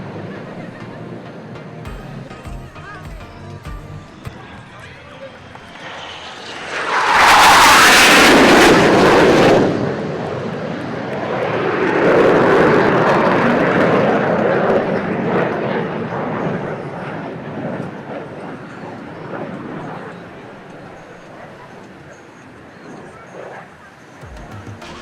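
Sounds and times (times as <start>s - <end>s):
jet aircraft flying past: 4.3s - 20.6s.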